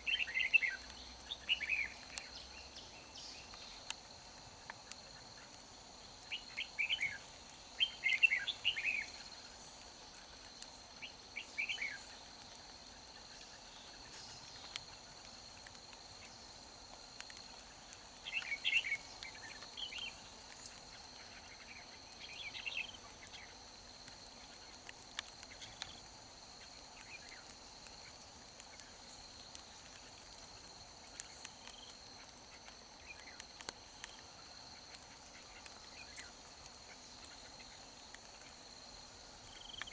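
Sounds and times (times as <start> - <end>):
bird singing rapid phrases: 0.0 - 3.8, 7.8 - 9.2, 18.2 - 23.6
insect drone: 0.0 - 39.9.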